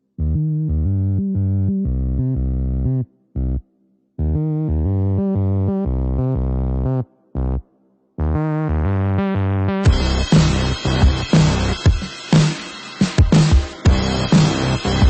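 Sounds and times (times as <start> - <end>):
synthesizer music with heavy bass: 8.2 - 15.0.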